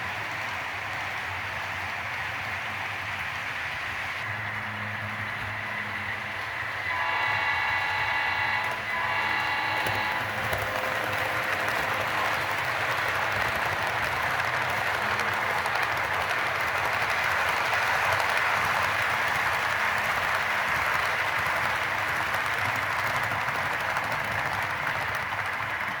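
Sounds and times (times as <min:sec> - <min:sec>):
model train wheels rattling on rail: 0:06.1 - 0:26.0.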